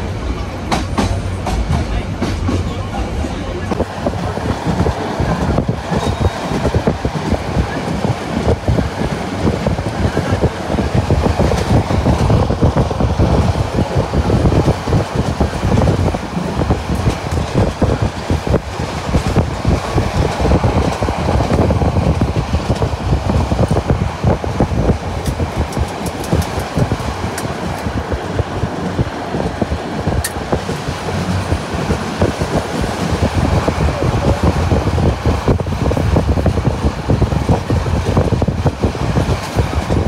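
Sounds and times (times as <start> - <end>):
train wheels rumbling on track: 0.0 - 40.0
rattling and clatter: 3.7 - 40.0.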